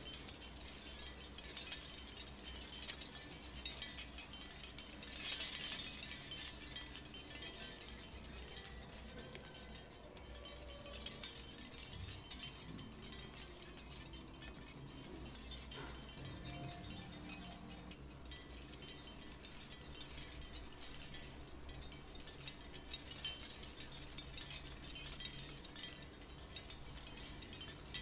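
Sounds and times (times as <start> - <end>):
tiny chain clicking and clinking: 0.0 - 28.0.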